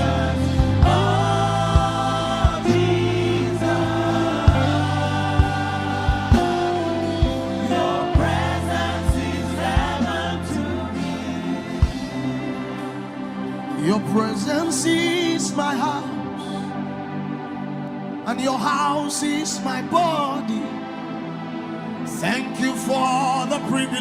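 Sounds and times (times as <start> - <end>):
steady bass: 0.0 - 14.9
sustained keyboard chords: 0.0 - 24.0
wordless singing: 0.0 - 24.0.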